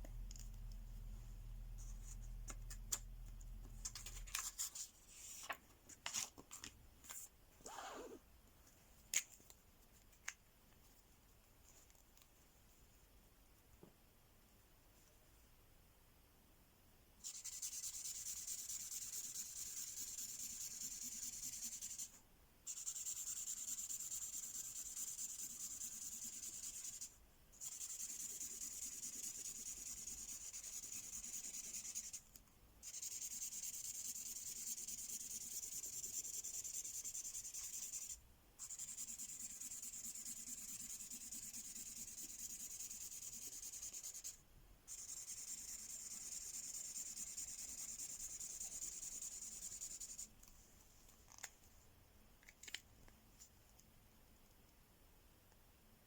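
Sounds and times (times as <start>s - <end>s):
marker scribbling on paper: 17.2s - 22.1s, 22.7s - 32.2s, 32.8s - 50.3s.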